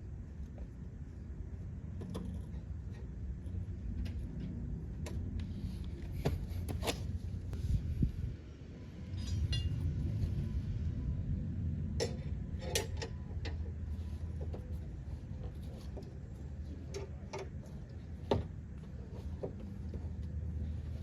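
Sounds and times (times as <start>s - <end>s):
steady low hum: 0.0s - 21.0s
light metallic clinks: 9.1s - 9.9s.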